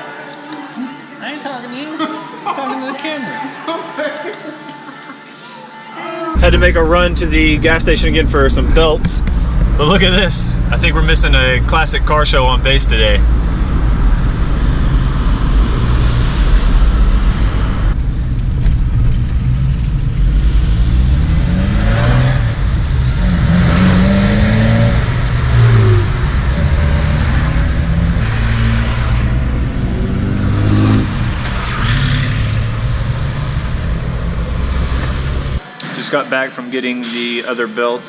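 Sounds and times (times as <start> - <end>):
car engine accelerating: 6.4 - 35.6
road noise: 6.4 - 38.0.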